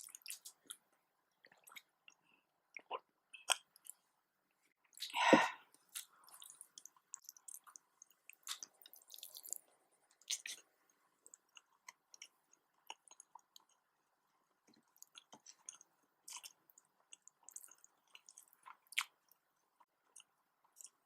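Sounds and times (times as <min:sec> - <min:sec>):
person chewing food: 0:00.0 - 0:00.8, 0:01.4 - 0:04.1, 0:04.8 - 0:21.0
mouth clicks and smacks: 0:01.4 - 0:04.0, 0:10.2 - 0:12.3.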